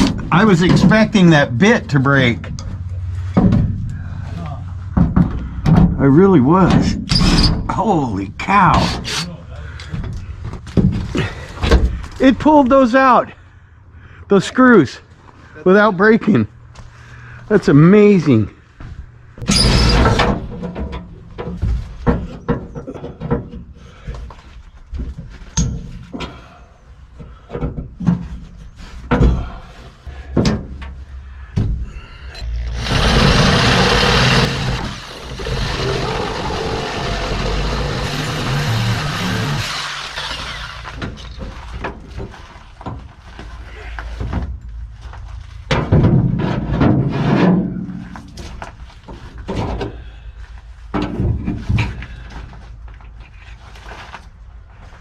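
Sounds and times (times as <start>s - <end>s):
metal knocks and clanks: 2.4s - 3.9s, 45.7s - 48.6s
power tool running: 32.4s - 41.0s.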